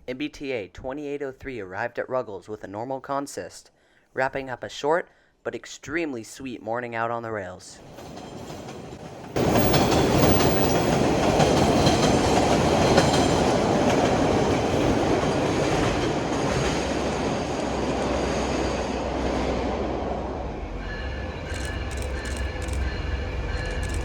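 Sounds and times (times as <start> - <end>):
high squeals of train wheels: 7.8 - 13.5, 20.6 - 24.0
train wheels rumbling on track: 7.8 - 24.0.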